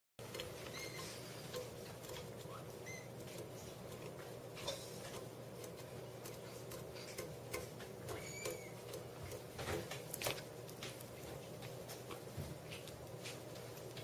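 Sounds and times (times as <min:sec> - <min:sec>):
kitten lapping water: 0:00.2 - 0:14.0
short high squeak: 0:00.7 - 0:01.2.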